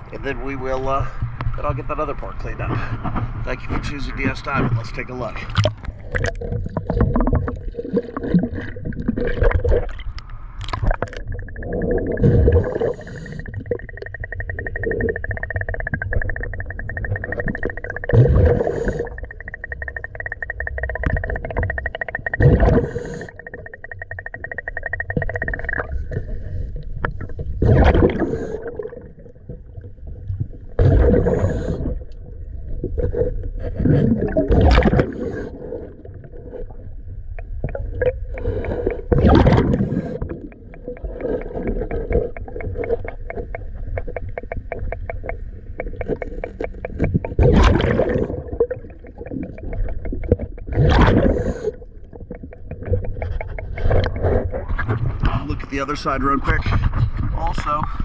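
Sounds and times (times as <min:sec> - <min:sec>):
gurgling exhaled bubbles: 0:00.0 - 0:58.0
steady hum: 0:37.4 - 0:57.7.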